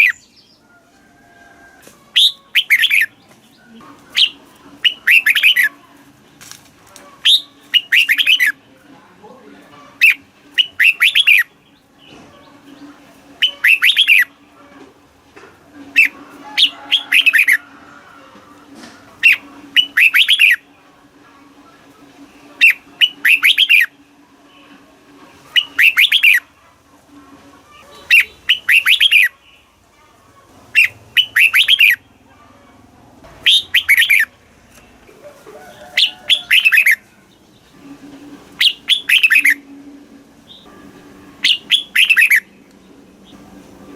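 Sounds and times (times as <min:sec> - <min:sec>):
bird singing: 0:00.0 - 0:00.7, 0:02.1 - 0:05.8, 0:07.2 - 0:08.6, 0:09.9 - 0:14.4, 0:19.2 - 0:20.7, 0:22.6 - 0:23.9, 0:25.5 - 0:26.5, 0:27.9 - 0:29.7, 0:30.7 - 0:32.2, 0:33.4 - 0:34.3, 0:36.0 - 0:38.0, 0:38.6 - 0:39.8, 0:40.4 - 0:43.6.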